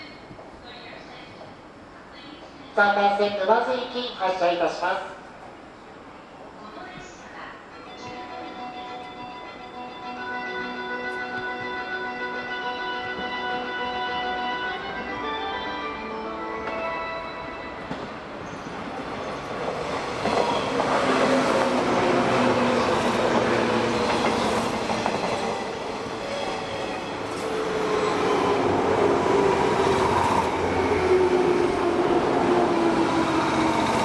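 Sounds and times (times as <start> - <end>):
electric train passing: 7.7 - 34.0.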